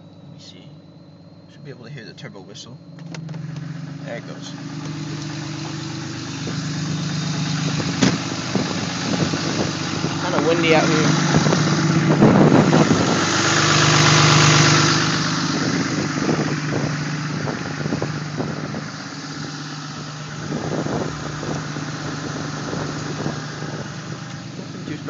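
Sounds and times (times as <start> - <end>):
diesel engine idling: 0.0 - 25.0
wind on microphone: 7.6 - 13.4, 20.4 - 24.8.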